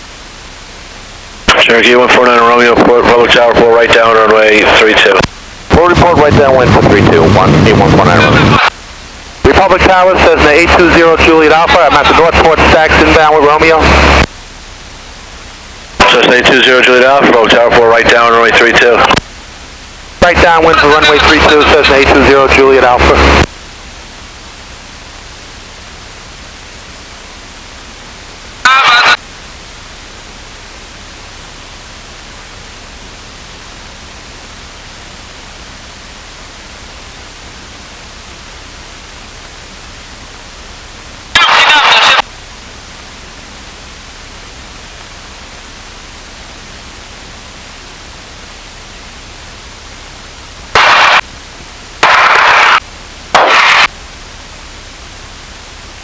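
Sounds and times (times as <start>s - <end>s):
radio receiver hiss: 0.0s - 19.4s, 20.2s - 23.6s, 28.3s - 29.3s, 41.0s - 43.2s, 43.8s - 56.0s
garbled radio transmission: 1.5s - 8.8s, 9.4s - 14.3s, 16.0s - 19.2s, 20.2s - 23.5s, 28.6s - 29.2s, 41.3s - 42.3s, 50.7s - 51.2s, 52.0s - 53.9s.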